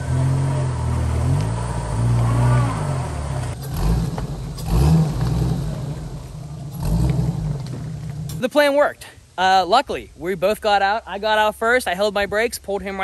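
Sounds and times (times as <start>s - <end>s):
off-road vehicle engine revving: 0.0s - 8.5s.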